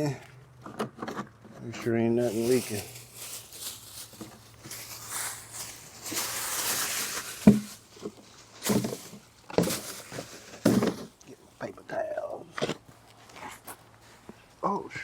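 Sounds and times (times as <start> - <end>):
rustling and scuffing: 1.6 - 11.2, 12.5 - 14.6.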